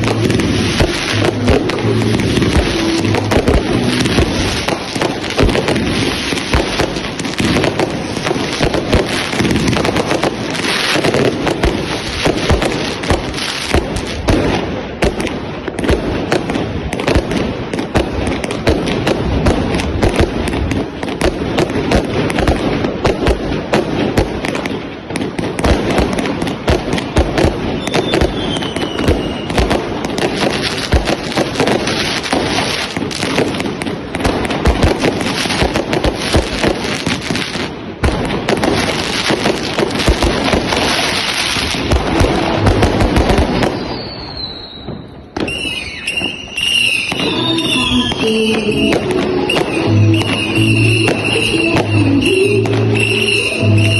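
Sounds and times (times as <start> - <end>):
fireworks and firecrackers banging: 0.0 - 53.9
faint falling whistle: 43.8 - 53.9.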